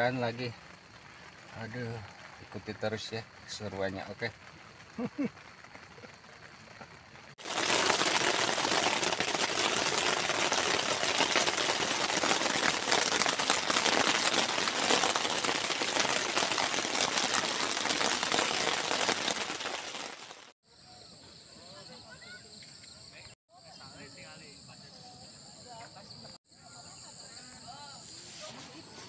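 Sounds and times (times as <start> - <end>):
heavy rain on tent fabric: 0.0 - 20.6.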